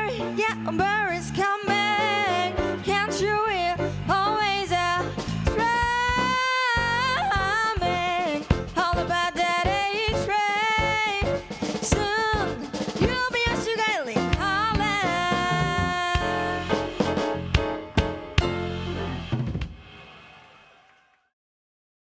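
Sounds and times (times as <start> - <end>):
person singing: 0.0 - 17.4
jazz quartet playing swing: 0.1 - 9.2, 10.9 - 19.3.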